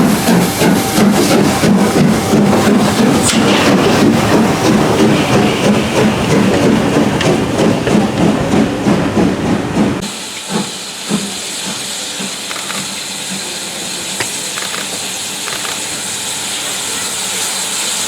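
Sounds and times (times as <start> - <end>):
steam train rumble: 0.0 - 18.0
hiss of escaping steam: 10.0 - 18.0
faint clicks: 12.5 - 13.0, 14.2 - 16.0.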